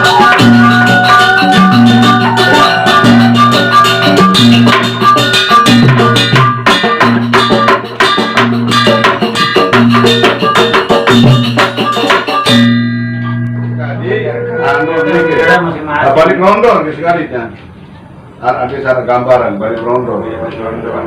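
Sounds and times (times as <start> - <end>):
gamelan ensemble playing: 0.0 - 16.1
metal tones ringing: 12.4 - 16.2.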